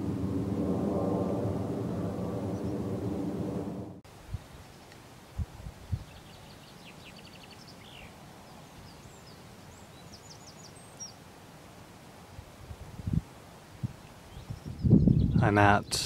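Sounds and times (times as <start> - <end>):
low thumps: 0.0 - 4.0
small bird chirps and trills: 5.9 - 11.2, 14.2 - 15.4.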